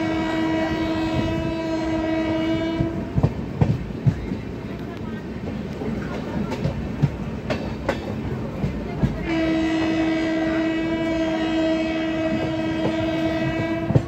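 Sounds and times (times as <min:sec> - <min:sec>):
train horn: 0:00.0 - 0:03.3, 0:09.0 - 0:14.0
train rumble: 0:00.0 - 0:14.0
train wheels clicking over joints: 0:02.7 - 0:10.1, 0:12.0 - 0:14.0.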